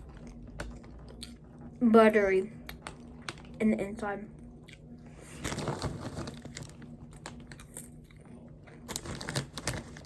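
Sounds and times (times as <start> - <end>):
person chewing popcorn: 0.0 - 1.8, 4.5 - 10.0
steady low hum: 0.0 - 10.0.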